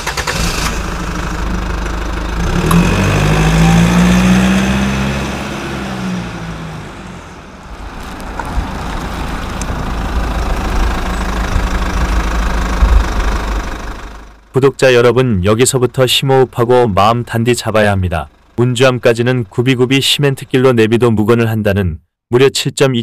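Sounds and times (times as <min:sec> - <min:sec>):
car engine revving: 0:00.0 - 0:14.4
low engine and road rumble: 0:00.0 - 0:21.6.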